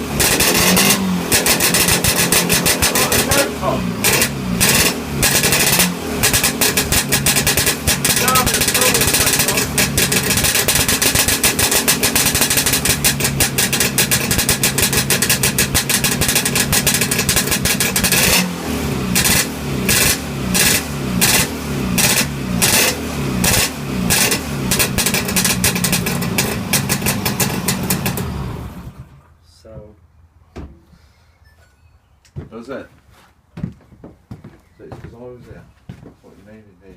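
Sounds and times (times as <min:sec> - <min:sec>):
two-stroke motorcycle engine revving: 0:00.0 - 0:29.0.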